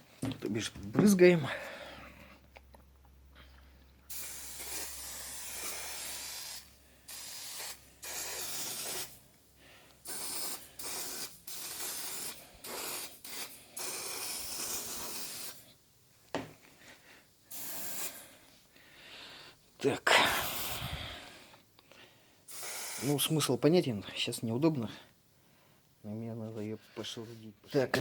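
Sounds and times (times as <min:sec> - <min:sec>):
aerosol spray can hissing: 0:04.1 - 0:09.2, 0:10.0 - 0:15.6, 0:17.5 - 0:18.3, 0:20.2 - 0:21.0, 0:22.5 - 0:23.3.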